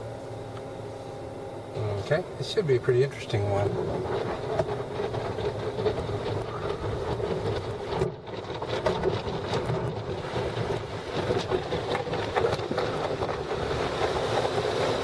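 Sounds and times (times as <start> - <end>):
car wash water spray and machinery: 0.0 - 15.0.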